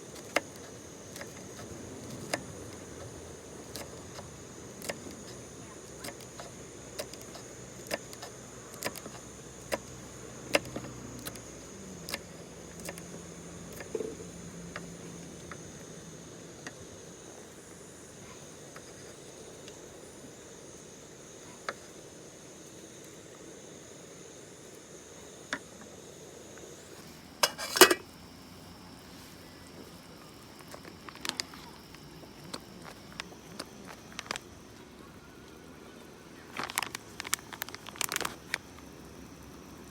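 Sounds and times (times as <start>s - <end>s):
crickets trilling: 0.0s - 39.9s
sharp clicks and clinks: 27.4s - 28.0s.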